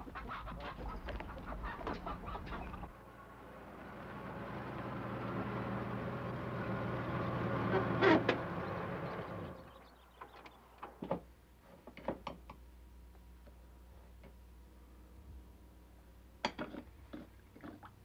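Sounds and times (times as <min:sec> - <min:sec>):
car engine running: 0:01.0 - 0:10.0.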